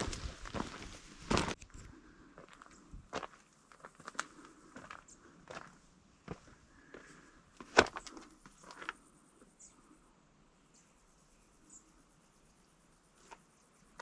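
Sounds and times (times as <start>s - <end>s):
footsteps on a rocky trail: 0.0s - 9.0s.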